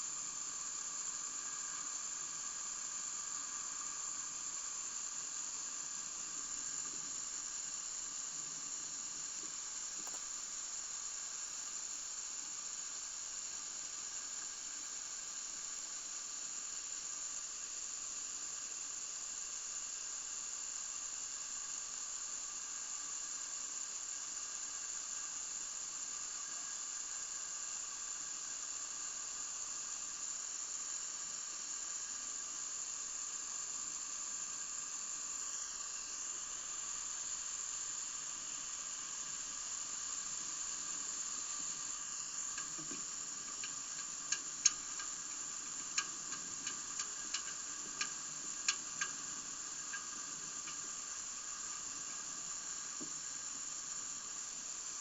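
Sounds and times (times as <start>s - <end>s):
high-pitched hiss: 0.0s - 55.0s
faint steady tones: 24.9s - 55.0s.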